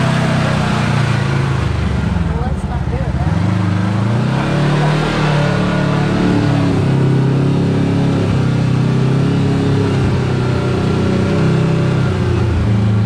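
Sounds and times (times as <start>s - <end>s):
utility vehicle engine running: 0.0s - 13.0s.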